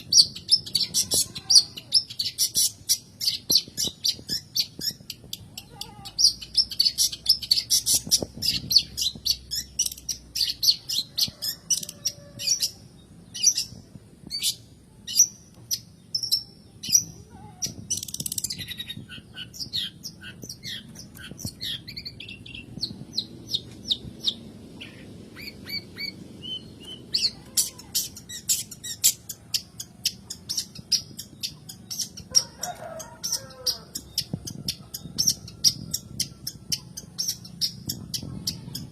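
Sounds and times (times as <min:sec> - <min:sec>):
shrike chattering: 0:26.8 - 0:38.9.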